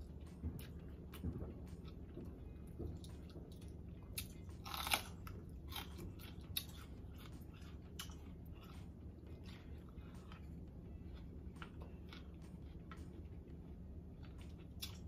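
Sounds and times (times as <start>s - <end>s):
person chewing: 0.1s - 15.0s
crisp pepper crunch: 4.1s - 13.2s.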